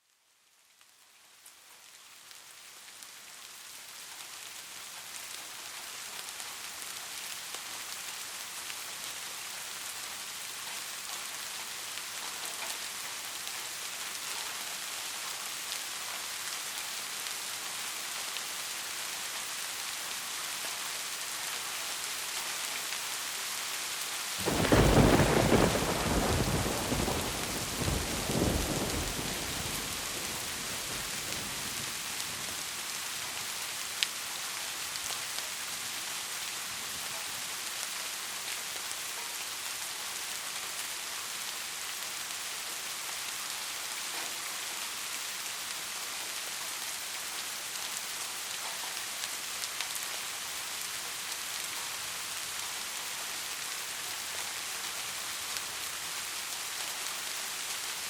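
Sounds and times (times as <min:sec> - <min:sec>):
rain falling on a roof: 0:00.0 - 0:58.0
thunderclap rumbling: 0:24.4 - 0:31.8.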